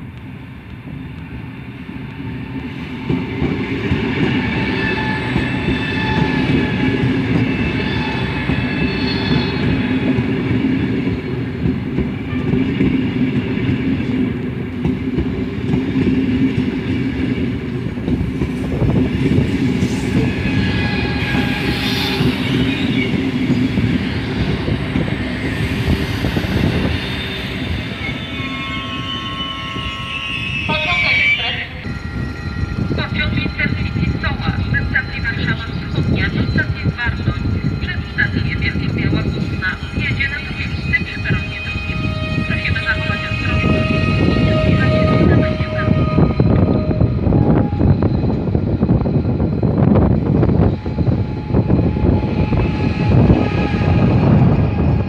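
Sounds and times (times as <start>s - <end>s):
train wheels rumbling and clattering: 0.0s - 30.0s, 31.8s - 55.0s
high-pitched brake squealing: 4.5s - 9.9s, 20.2s - 55.0s.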